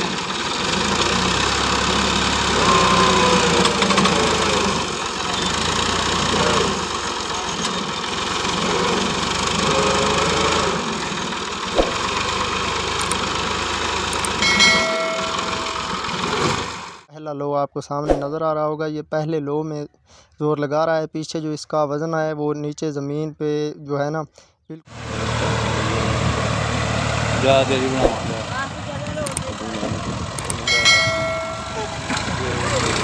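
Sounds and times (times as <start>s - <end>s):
tractor diesel engine straining: 0.0s - 17.1s, 24.9s - 33.0s
brief high pitched tone: 2.6s - 3.7s, 14.4s - 16.1s, 30.7s - 33.0s.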